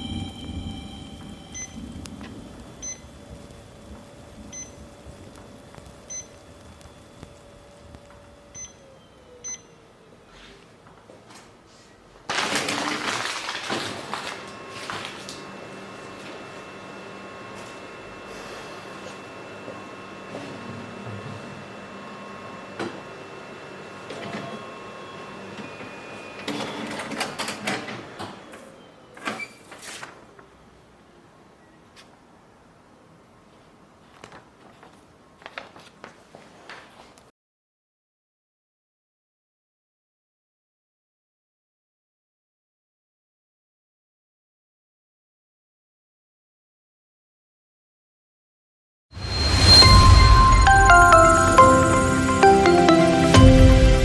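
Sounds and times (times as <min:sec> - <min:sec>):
short high electronic beeps: 0:00.0 - 0:01.8, 0:49.2 - 0:54.0
copier machine humming: 0:00.0 - 0:08.6
copier machine whir: 0:00.0 - 0:08.6, 0:12.3 - 0:28.6.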